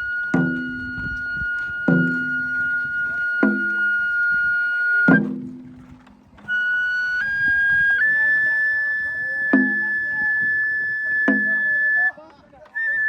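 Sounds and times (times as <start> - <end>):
transverse flute high notes: 0.0 - 5.6, 6.5 - 12.2, 12.8 - 13.0
drum strikes: 0.2 - 4.1, 5.1 - 6.0, 9.5 - 10.0, 11.3 - 11.9.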